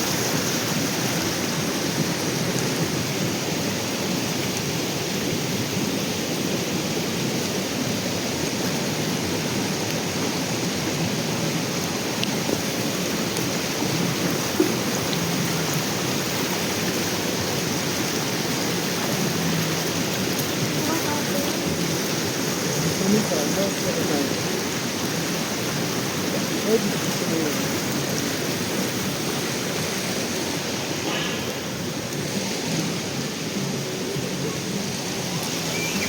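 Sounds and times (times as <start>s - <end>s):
steady rushing noise: 28.5s - 35.7s.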